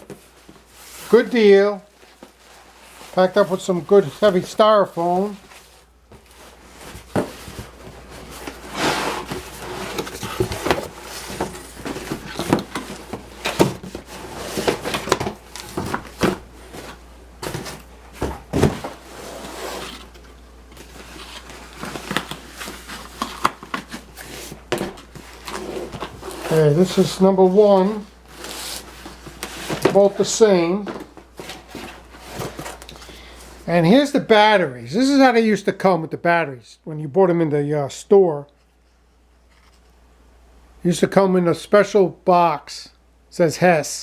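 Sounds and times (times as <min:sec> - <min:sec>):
styrofoam rubbing and scraping: 0:06.4 - 0:15.2, 0:18.5 - 0:20.2, 0:21.0 - 0:30.1.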